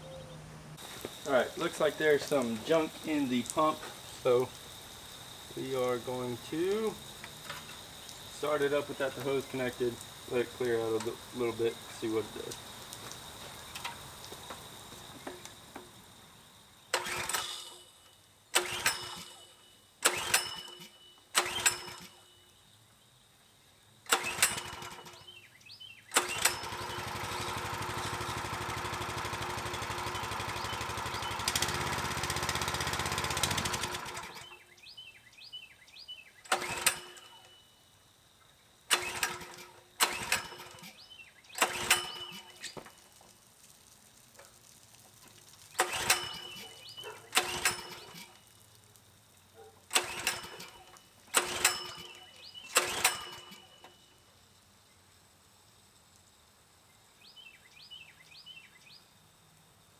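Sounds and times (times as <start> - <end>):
small gas engine running: 0.0 - 17.9, 18.5 - 22.2, 24.1 - 25.3, 26.1 - 34.6, 36.5 - 37.6, 38.9 - 41.0, 41.6 - 43.4, 44.4 - 54.0
recoil starter pulls: 0.8 - 22.2, 24.1 - 25.4, 26.1 - 34.7, 36.4 - 37.6, 38.9 - 54.0.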